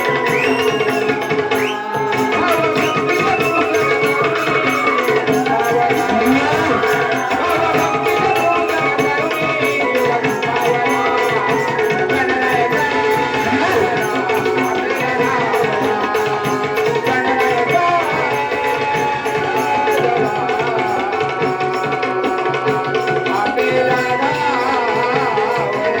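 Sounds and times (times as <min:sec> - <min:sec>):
wavering melody line: 0:00.0 - 0:21.3
hand drum beating: 0:00.0 - 0:26.0
sustained drone tones: 0:02.4 - 0:19.1.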